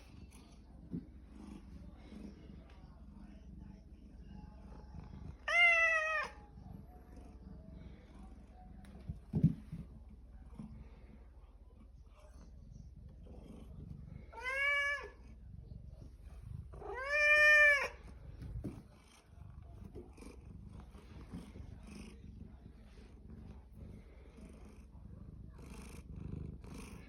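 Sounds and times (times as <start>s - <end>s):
cat purring: 0.0s - 5.6s, 6.2s - 27.0s
cat meowing: 5.4s - 6.4s, 14.3s - 15.2s, 16.8s - 18.0s.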